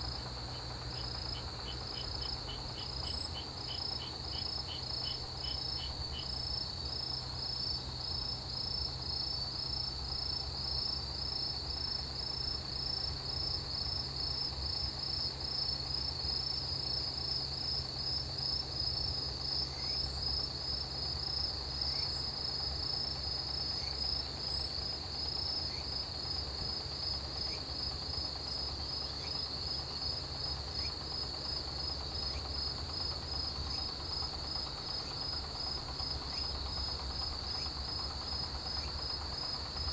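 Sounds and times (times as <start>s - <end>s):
high insect trill: 0.0s - 15.0s, 23.7s - 39.9s
low steady rumble: 0.0s - 15.0s, 20.9s - 39.9s
crickets pulsed chirping: 0.0s - 39.9s.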